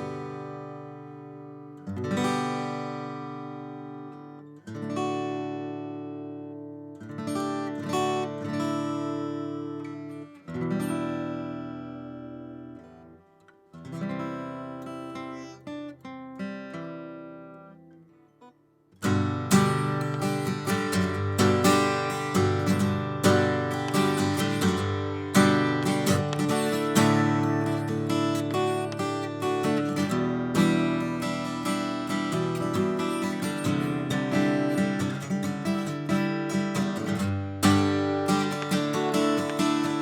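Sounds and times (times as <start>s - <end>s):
acoustic guitar strumming: 0.0s - 40.0s.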